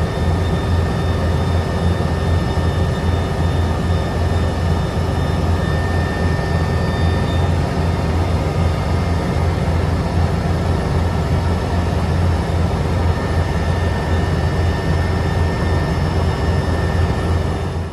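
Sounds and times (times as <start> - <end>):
whining tones: 0.0 - 9.8
helicopter rotor drone: 0.0 - 17.9.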